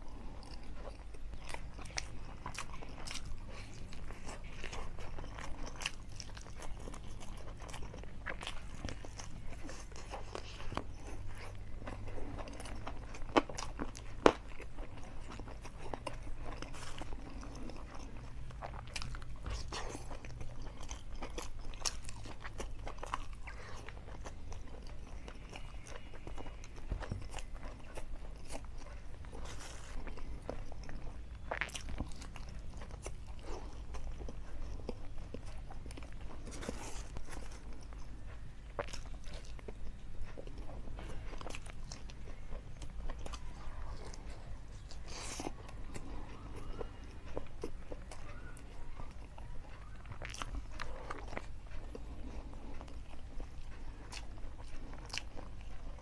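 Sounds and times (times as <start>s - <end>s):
close chewing mouth sounds: 0.0s - 56.0s.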